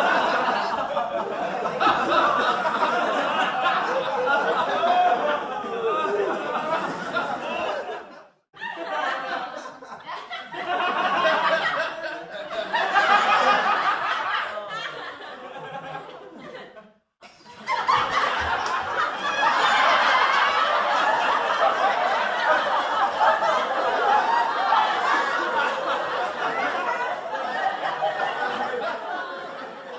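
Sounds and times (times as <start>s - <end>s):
studio audience laughing: 0.0s - 29.9s.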